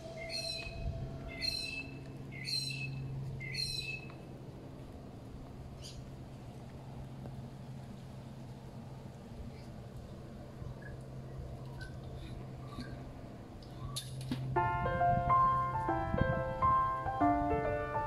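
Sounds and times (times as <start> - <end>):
bird calling: 0.0 - 4.2
low steady hum: 0.0 - 18.0.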